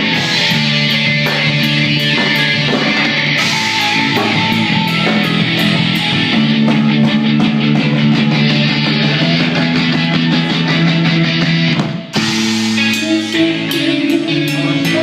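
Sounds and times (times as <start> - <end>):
bass guitar: 0.0 - 15.0
electric guitars low chords: 0.0 - 15.0.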